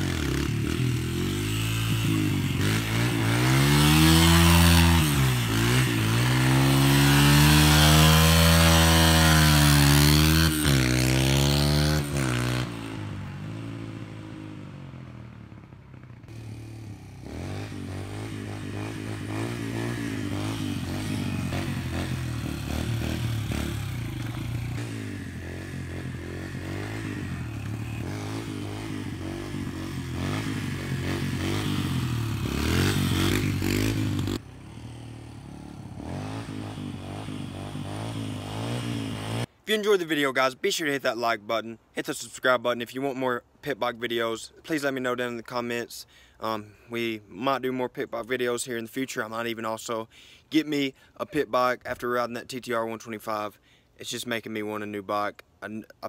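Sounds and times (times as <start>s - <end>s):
motorbike engine revving: 0.0s - 39.6s.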